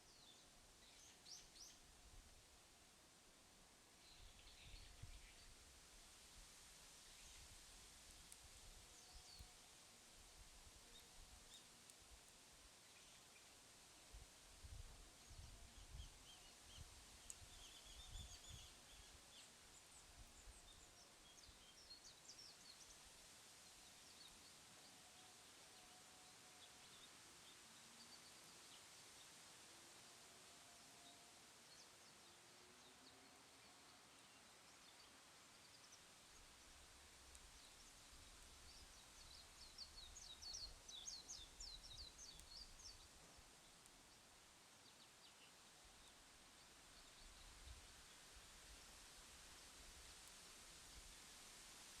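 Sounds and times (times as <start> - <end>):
faint bird chirping: 0.0 - 2.2, 3.9 - 5.6, 8.6 - 29.4, 30.1 - 49.0
small birds chirping: 31.6 - 48.2.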